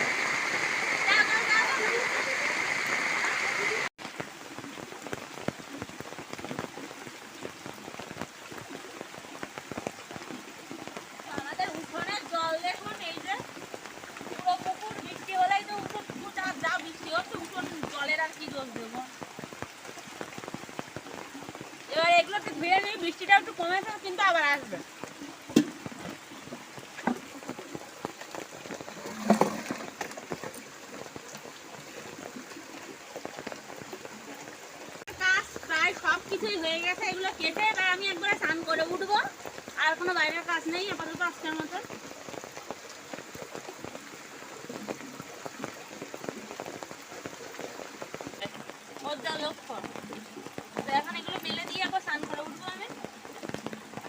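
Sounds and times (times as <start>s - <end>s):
drips and ticks: 0.0s - 54.0s
raindrops striking surfaces: 0.0s - 54.0s
steady rain falling: 0.0s - 54.0s.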